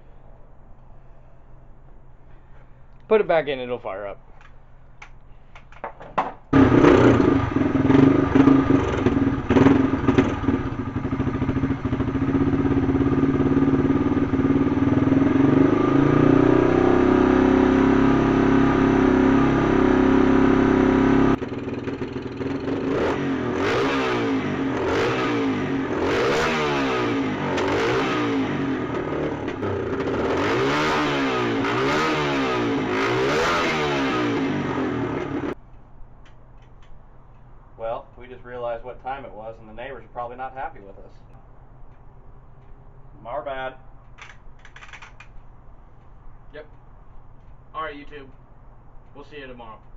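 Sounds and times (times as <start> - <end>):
dirt bike engine revving: 6.5 - 35.6.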